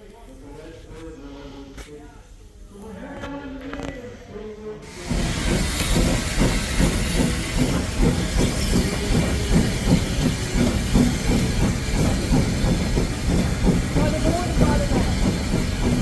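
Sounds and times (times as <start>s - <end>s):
steam train hissing: 4.8s - 16.0s
steam train low chugging beat: 4.8s - 16.0s.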